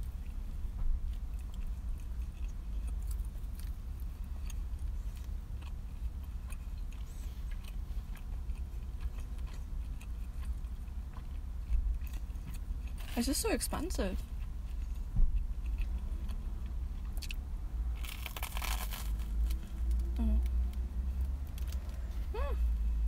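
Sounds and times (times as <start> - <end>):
person chewing food: 0.0 - 13.2, 14.2 - 22.2
low rumble: 13.8 - 23.0.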